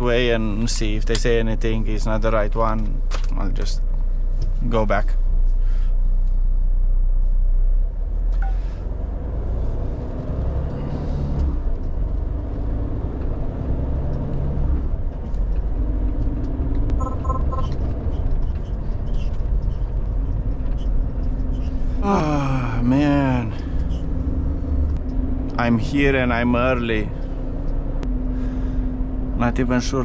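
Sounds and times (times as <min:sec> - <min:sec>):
diesel lorry engine rumble: 0:00.0 - 0:30.0
quick electronic beeps: 0:17.0 - 0:17.8.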